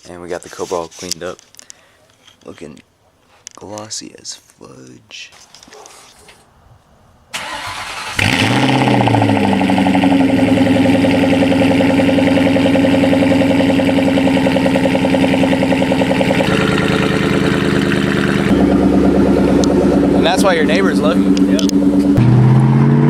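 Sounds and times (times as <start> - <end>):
engine cranking: 7.4 - 22.2
car engine revving and idling: 7.4 - 23.0.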